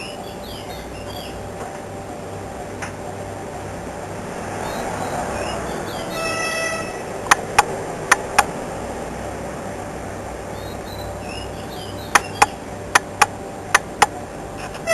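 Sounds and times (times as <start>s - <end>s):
city traffic hum: 0.0s - 14.9s
sharp clicks: 7.2s - 8.5s, 12.1s - 14.2s.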